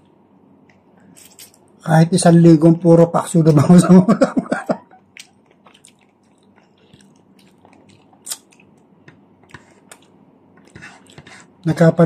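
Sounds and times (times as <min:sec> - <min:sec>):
quiet chewing: 0:04.9 - 0:11.6
soft mouth clicks: 0:05.2 - 0:10.1.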